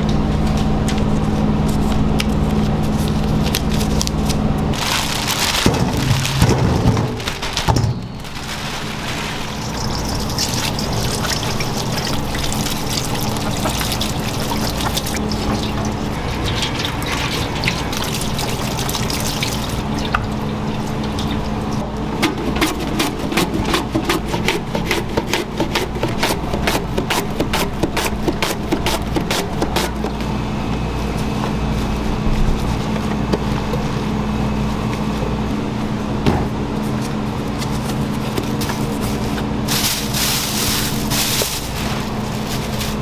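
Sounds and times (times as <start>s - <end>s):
low machine hum: 0.0s - 43.0s
liquid trickling and pouring: 8.4s - 21.8s.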